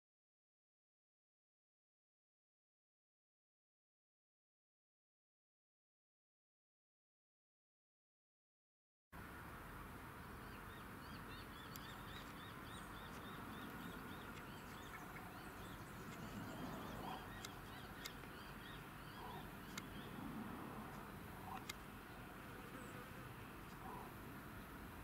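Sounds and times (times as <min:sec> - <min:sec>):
low background noise: 0:09.2 - 0:25.0
small bird chirping: 0:10.4 - 0:20.2
sharp ticks: 0:11.6 - 0:12.4, 0:13.0 - 0:18.8, 0:19.6 - 0:20.1.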